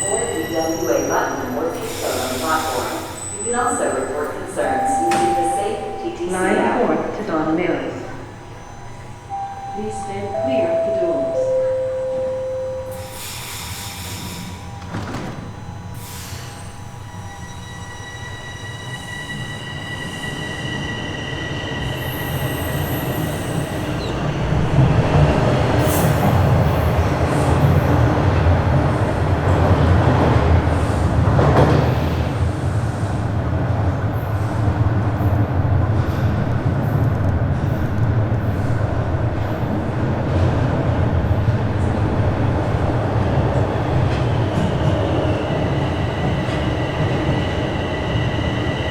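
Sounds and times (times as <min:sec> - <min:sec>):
train wheel squeal: 0:00.0 - 0:04.3, 0:12.9 - 0:24.4, 0:44.1 - 0:48.9
train wheels rumbling on rails: 0:12.9 - 0:48.9.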